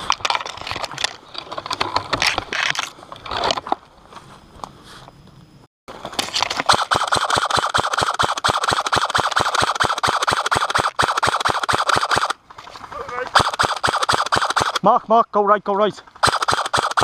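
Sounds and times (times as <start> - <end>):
airsoft gun full-auto firing: 6.7 - 12.4, 13.4 - 14.8, 16.2 - 17.0.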